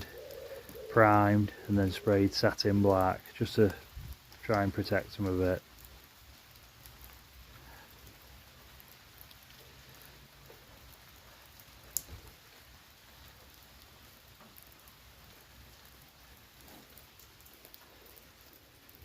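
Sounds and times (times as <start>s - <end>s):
faint rain pattering: 0.0s - 19.0s
tiny drips: 0.0s - 19.0s.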